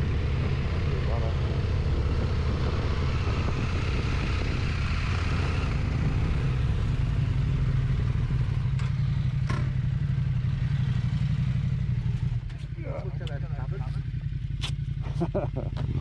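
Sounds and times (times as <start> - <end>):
rushing wind and road noise: 0.0 - 12.7
motorcycle engine running: 0.0 - 16.0.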